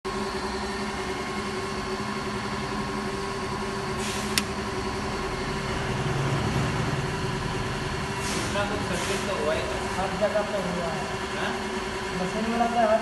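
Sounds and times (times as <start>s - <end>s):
air compressor humming: 0.1s - 13.0s
sharp click: 4.3s - 4.5s.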